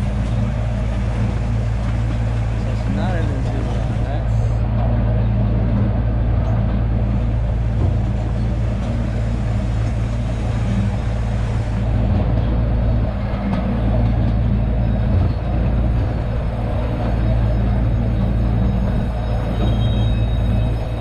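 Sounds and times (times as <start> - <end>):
miniature train rumbling: 0.0 - 21.0.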